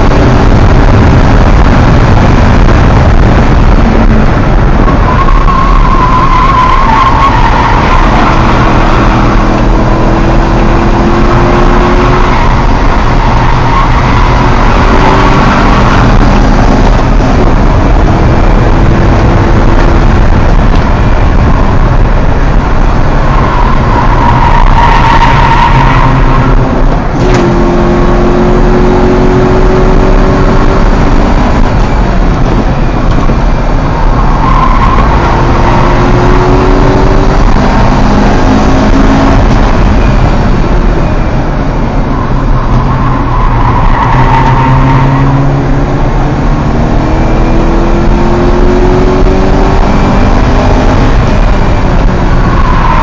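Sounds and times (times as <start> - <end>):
car engine revving through gears: 0.0 - 53.0.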